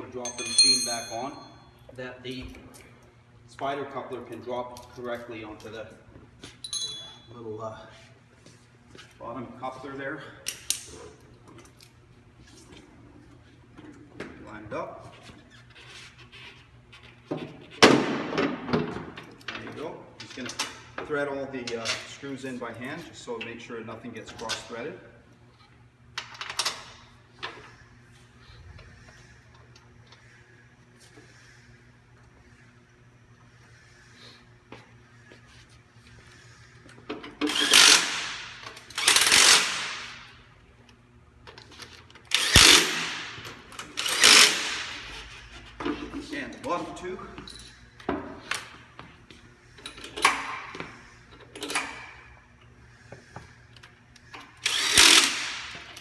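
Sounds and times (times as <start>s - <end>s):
metal tools clicking and knocking: 0.2s - 1.4s, 6.6s - 7.2s
ringing metal clanks: 0.2s - 1.7s, 6.6s - 7.3s.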